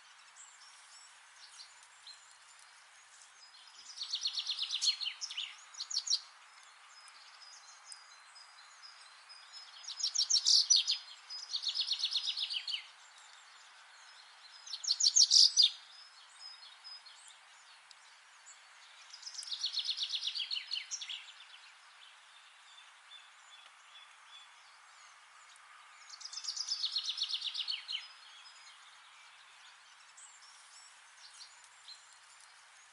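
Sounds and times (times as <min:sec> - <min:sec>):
faint hiss: 0:00.0 - 0:32.9
songbird trilling: 0:09.8 - 0:12.9, 0:14.7 - 0:15.8.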